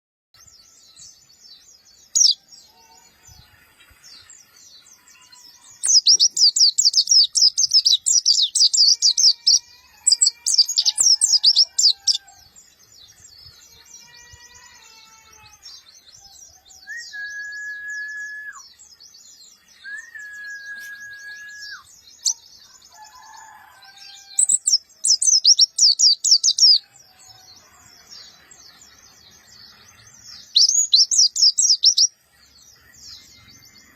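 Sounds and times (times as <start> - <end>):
bird chirps: 0.4 - 33.9
long whistled notes: 19.8 - 21.9.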